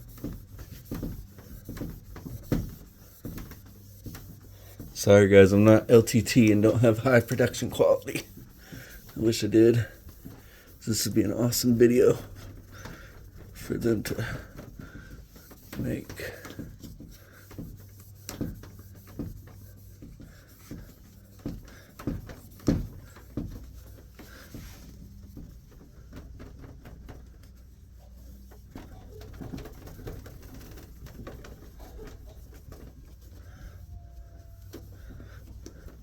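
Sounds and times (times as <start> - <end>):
light knocks and handling noises: 0.0 - 36.0
heavy breathing through nose: 8.4 - 9.2, 12.3 - 13.6, 14.2 - 17.6, 33.2 - 36.0.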